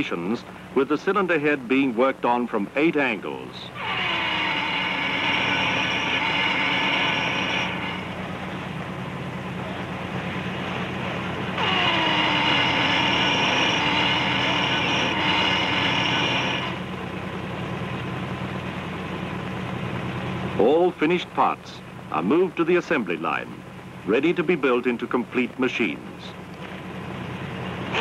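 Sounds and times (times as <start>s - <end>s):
machine low hum: 0.0s - 24.8s
high machining whine: 3.6s - 8.6s, 11.2s - 17.2s.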